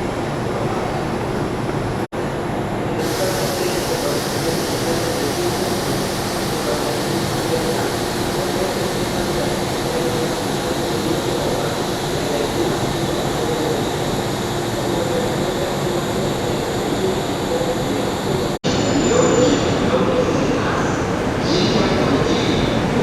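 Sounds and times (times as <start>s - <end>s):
electric train hum: 0.0s - 19.9s
bright hiss: 3.0s - 18.0s.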